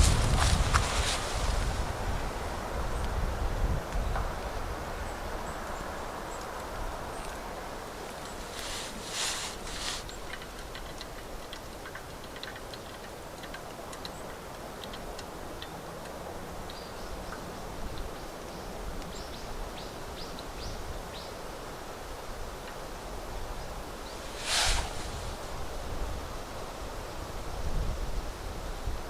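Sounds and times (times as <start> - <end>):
campfire crackling: 0.0 - 2.6, 7.8 - 15.3, 24.1 - 25.9
outdoor hiss: 0.0 - 3.7, 6.2 - 14.7, 17.7 - 28.8
rustle: 0.0 - 29.0.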